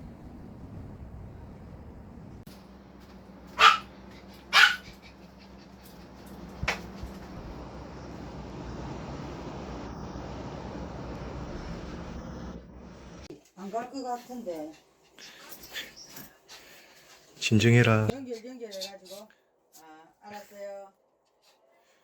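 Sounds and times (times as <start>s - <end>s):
dog barking: 3.6s - 3.9s, 4.5s - 5.0s.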